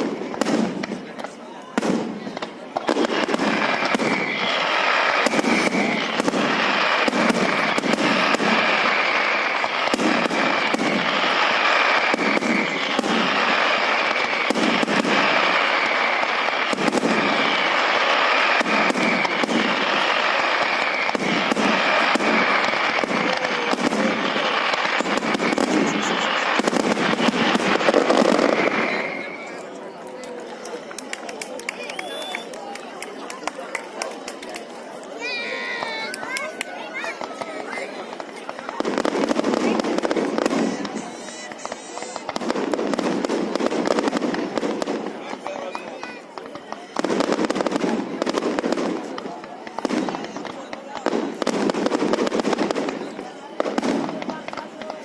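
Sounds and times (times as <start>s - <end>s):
fireworks crackling bangs: 0.0s - 55.0s
high whistling tone: 31.8s - 32.6s.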